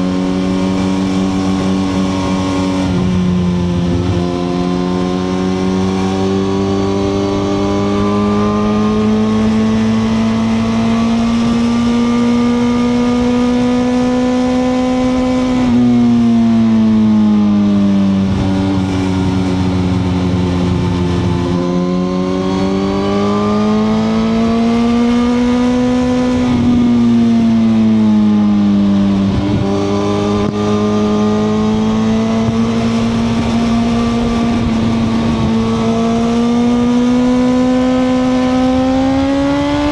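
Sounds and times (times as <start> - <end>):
motorcycle engine running: 0.0 - 39.9
wind and road rush: 0.0 - 39.9.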